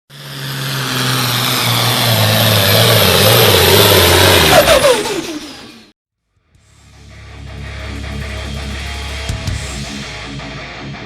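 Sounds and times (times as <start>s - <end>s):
diesel tractor engine at full throttle: 0.1s - 5.9s.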